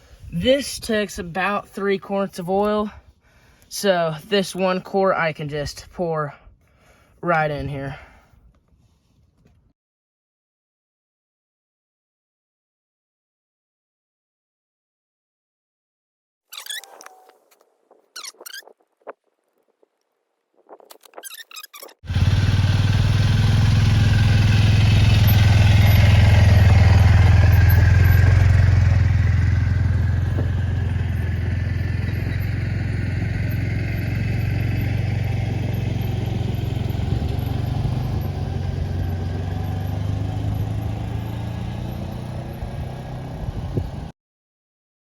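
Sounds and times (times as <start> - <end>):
atv engine running: 22.1 - 44.1.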